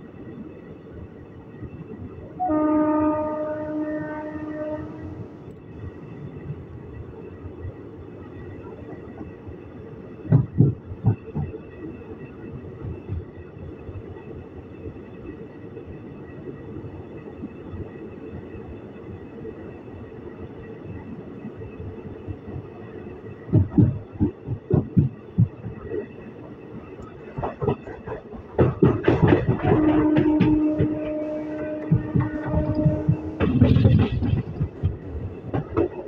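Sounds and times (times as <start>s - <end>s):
train coach running rumble: 1.7s - 36.0s
wheels clacking over rail joints: 27.1s - 36.0s.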